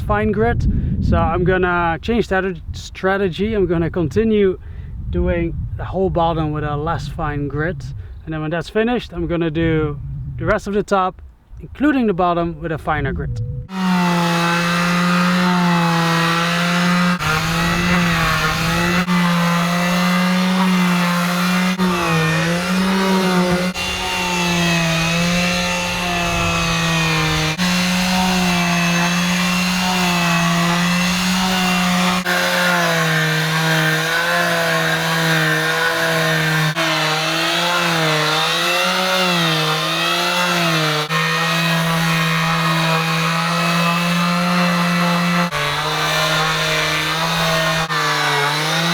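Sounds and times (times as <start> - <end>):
power sander running: 13.7 - 48.9.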